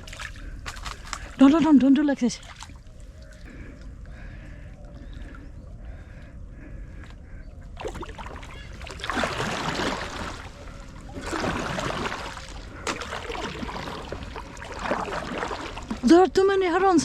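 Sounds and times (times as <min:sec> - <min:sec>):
kayak paddle splashing: 0:00.0 - 0:01.5, 0:02.4 - 0:05.5, 0:07.8 - 0:16.3.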